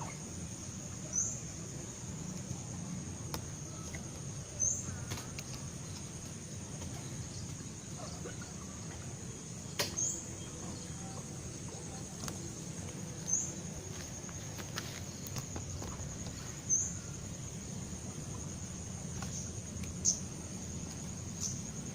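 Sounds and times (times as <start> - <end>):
insect calling high-pitched: 0.0 - 1.5.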